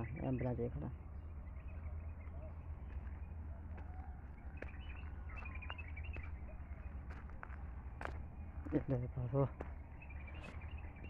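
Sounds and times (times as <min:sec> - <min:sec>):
faint bird chirps: 0:00.0 - 0:07.1, 0:09.3 - 0:11.0
steady low rumble: 0:00.0 - 0:11.0.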